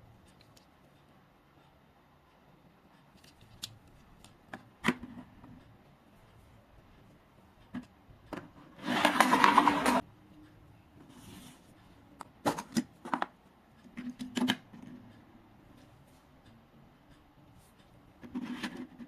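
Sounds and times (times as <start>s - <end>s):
toy handling clicks and taps: 0.2s - 0.8s, 3.0s - 5.7s, 12.2s - 15.2s.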